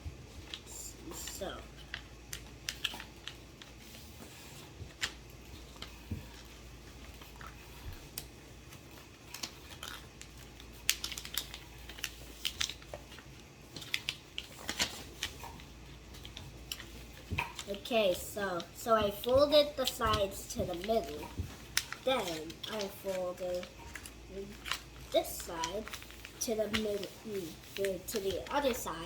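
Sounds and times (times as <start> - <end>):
paper crinkling and creasing: 0.3 - 29.0.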